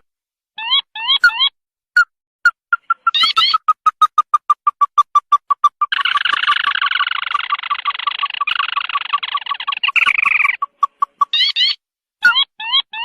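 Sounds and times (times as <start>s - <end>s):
shrill bird trill: 0.6s - 2.1s, 2.7s - 13.0s
upward-sweeping bird calls: 2.7s - 13.0s.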